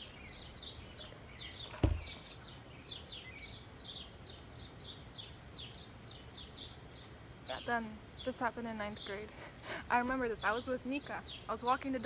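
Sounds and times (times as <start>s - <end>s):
small birds chirping: 0.0s - 12.0s
thump: 1.7s - 2.1s.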